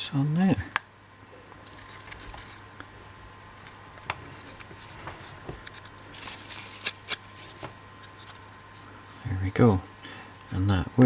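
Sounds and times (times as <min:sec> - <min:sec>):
wood scraping and rustling: 0:01.6 - 0:02.6, 0:03.5 - 0:08.8.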